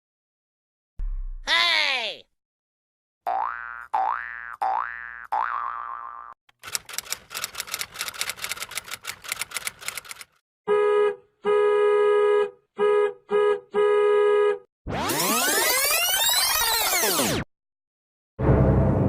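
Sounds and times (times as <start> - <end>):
rapid key clicking: 6.6 - 10.4.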